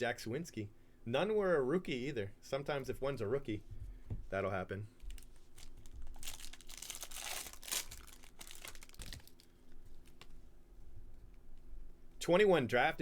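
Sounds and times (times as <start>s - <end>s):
wrapper crinkling and tearing: 5.1s - 10.3s.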